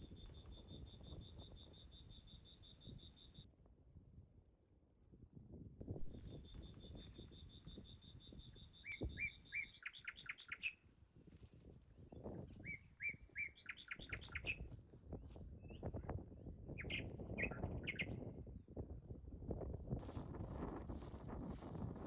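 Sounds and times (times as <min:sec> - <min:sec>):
songbird singing: 0:00.0 - 0:03.5, 0:06.0 - 0:10.8, 0:12.0 - 0:14.8, 0:16.7 - 0:18.3.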